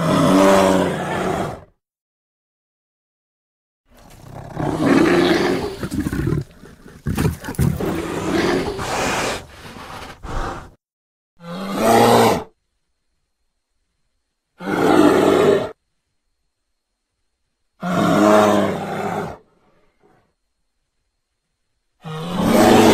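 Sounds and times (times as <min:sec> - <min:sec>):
bear roaring and growling: 0:00.0 - 0:01.7, 0:04.0 - 0:10.8, 0:11.4 - 0:12.5, 0:14.6 - 0:15.8, 0:17.8 - 0:19.5, 0:22.0 - 0:22.9.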